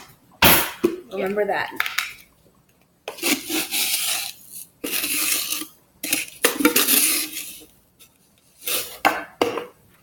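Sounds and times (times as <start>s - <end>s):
utensil scraping a bowl: 3.1s - 9.2s.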